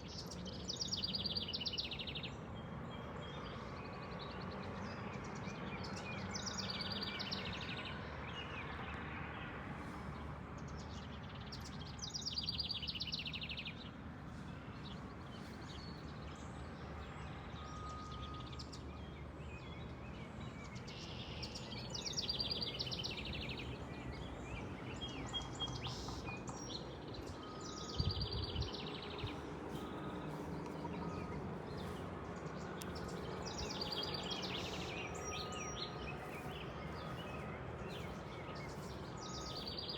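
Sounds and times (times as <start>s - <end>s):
outdoor background hum: 0.0s - 39.9s
bird trilled song: 24.5s - 39.9s
soft bird chirps: 25.3s - 39.9s.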